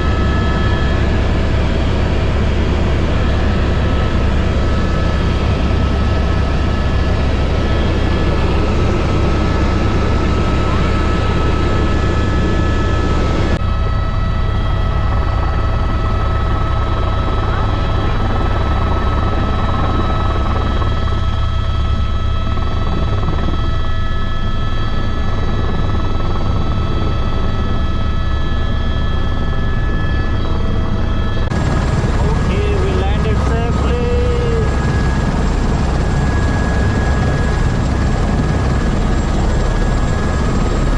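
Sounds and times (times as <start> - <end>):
helicopter rotor and engine rumble: 0.0 - 40.9
high turbine whine: 27.9 - 40.9.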